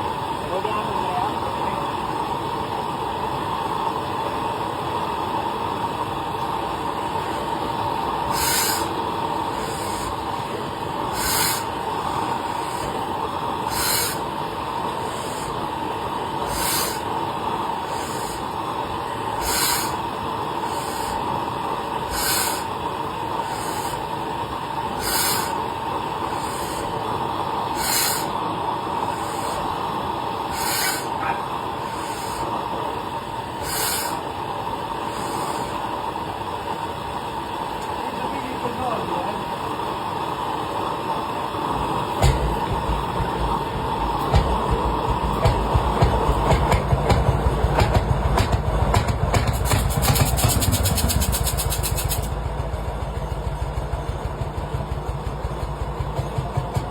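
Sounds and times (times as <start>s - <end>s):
hiss-like pulse: 0.0s - 37.8s, 40.1s - 56.8s
tractor engine running: 2.9s - 35.8s, 41.6s - 56.9s.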